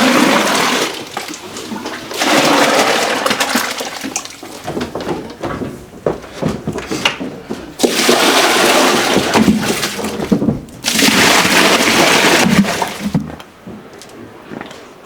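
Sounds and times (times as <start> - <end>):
liquid pouring: 0.0 - 4.6, 7.8 - 13.2.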